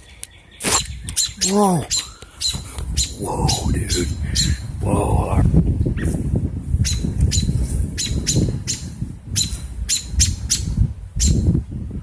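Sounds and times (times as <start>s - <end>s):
robin alarm calls: 0.0s - 4.8s, 6.8s - 11.5s.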